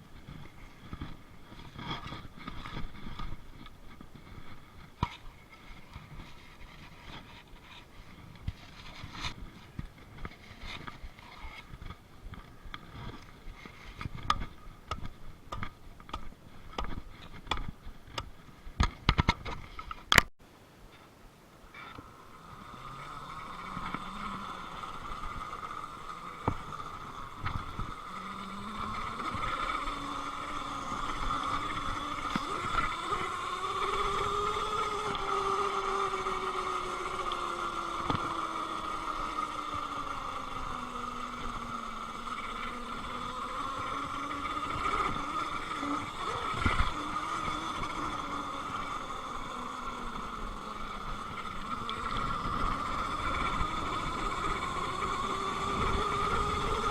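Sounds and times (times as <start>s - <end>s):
electric motor whining: 21.8s - 56.9s.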